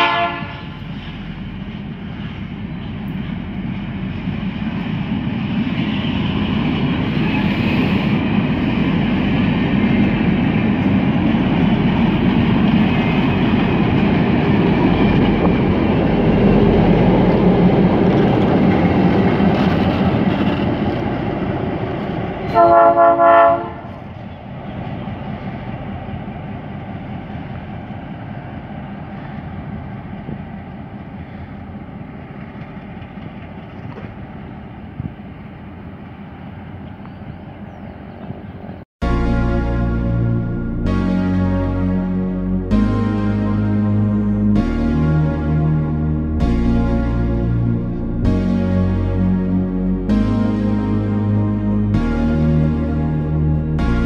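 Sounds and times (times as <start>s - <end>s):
locomotive horn blast: 0.0s - 1.8s, 22.4s - 24.1s, 39.0s - 54.0s
freight train wheels rolling: 0.0s - 23.0s, 23.6s - 38.8s.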